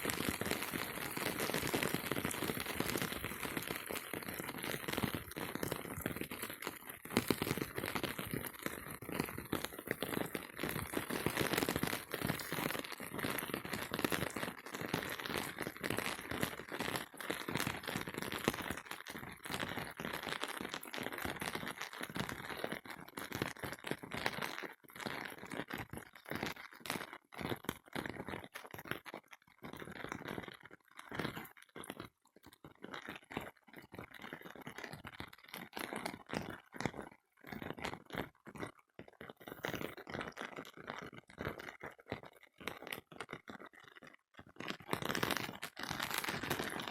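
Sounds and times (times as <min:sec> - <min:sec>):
rain falling on a surface: 0:00.0 - 0:20.9.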